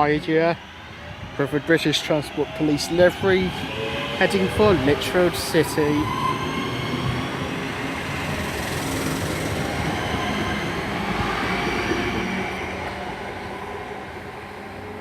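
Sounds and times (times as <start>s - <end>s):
electric train motor whine: 6.2s - 13.0s
wheels rumbling on rail: 6.3s - 13.7s.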